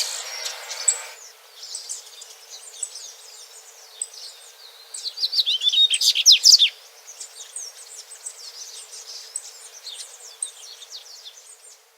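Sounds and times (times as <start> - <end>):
bird chirping and twittering: 0.0 - 3.2.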